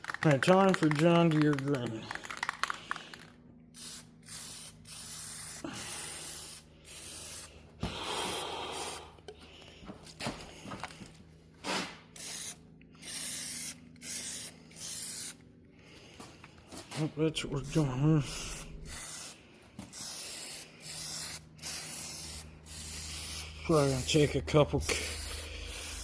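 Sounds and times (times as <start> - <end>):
spray paint can hissing: 0.0 - 9.0, 12.2 - 15.4, 17.7 - 26.0.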